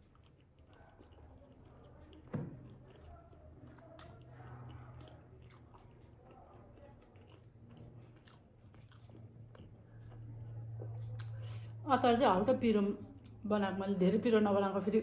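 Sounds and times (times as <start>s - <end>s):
person chewing wet mouth sounds: 0.0s - 11.8s
faint low hum: 0.0s - 15.0s.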